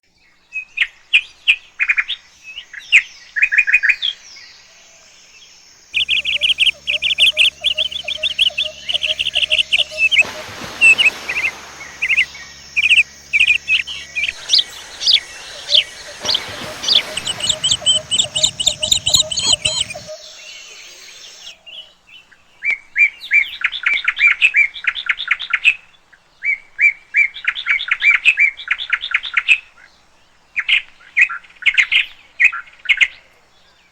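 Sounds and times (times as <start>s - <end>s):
birds chirping: 3.9s - 21.9s
rush of background noise: 6.0s - 21.5s.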